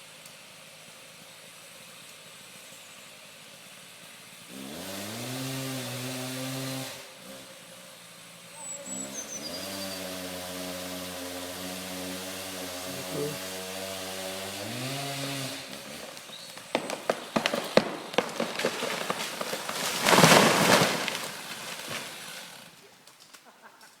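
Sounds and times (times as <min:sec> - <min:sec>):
chainsaw idling and revving: 0:03.2 - 0:23.0
tree crashing to the ground: 0:15.0 - 0:23.4
tree trunk cracking: 0:15.6 - 0:23.5.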